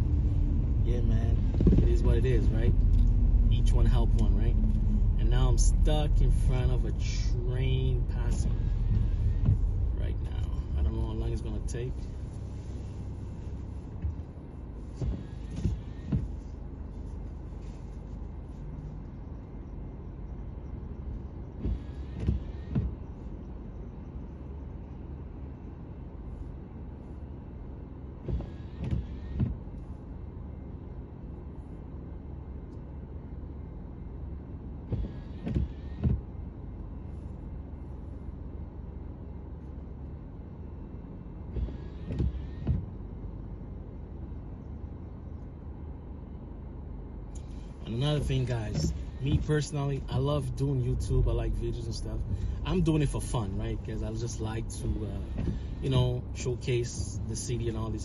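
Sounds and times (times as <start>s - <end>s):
low cabin rumble: 0.0s - 58.0s
windshield wipers knocking and squeaking: 0.4s - 7.2s, 7.8s - 25.0s, 28.1s - 30.2s, 34.8s - 37.1s, 41.4s - 43.4s, 47.4s - 58.0s.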